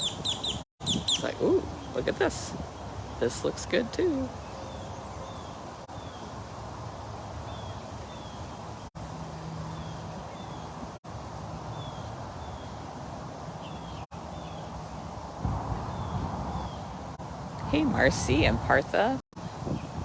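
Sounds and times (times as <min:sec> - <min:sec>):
bird chirping: 0:00.0 - 0:06.4
wind buffeting microphone: 0:00.0 - 0:11.0, 0:11.7 - 0:20.0.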